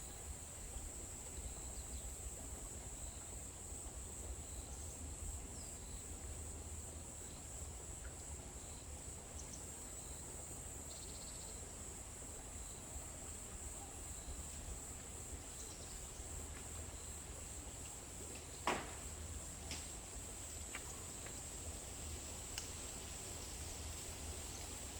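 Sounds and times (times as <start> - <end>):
high-pitched insect trill: 10.8 - 11.6.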